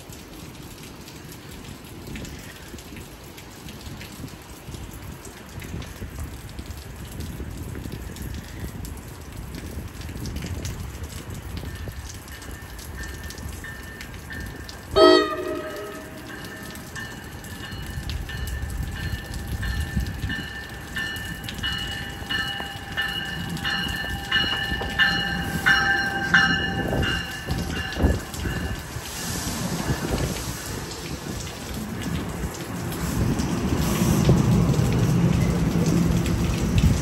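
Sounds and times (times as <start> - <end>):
rain hiss: 0.0 - 37.0
train rumble: 5.2 - 37.0
train horn blast: 14.9 - 16.9
bell ringing: 15.0 - 28.7.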